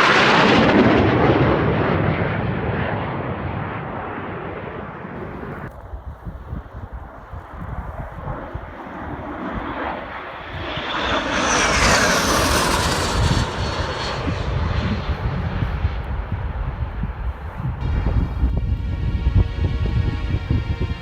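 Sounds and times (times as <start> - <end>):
low-flying military aircraft passing: 0.0 - 5.7, 6.9 - 20.6
wind rumbling on microphone: 5.2 - 21.0.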